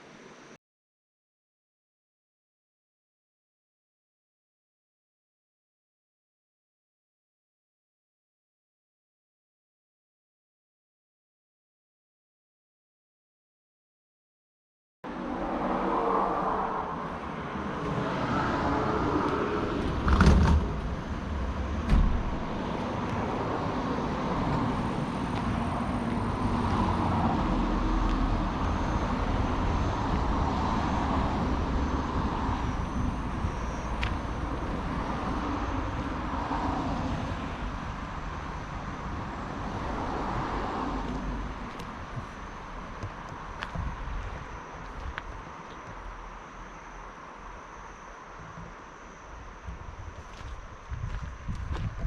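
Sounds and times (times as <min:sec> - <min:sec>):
road noise: 0:15.0 - 0:52.0
vehicle engine rumble: 0:15.1 - 0:52.0.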